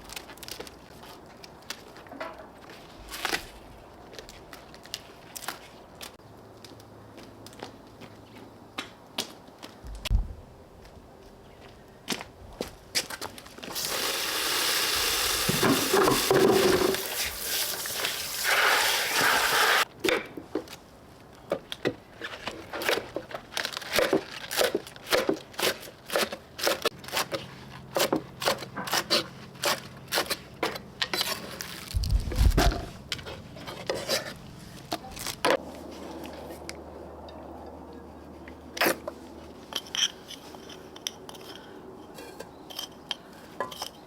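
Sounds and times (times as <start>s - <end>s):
loud cooking hiss: 13.7s - 19.9s.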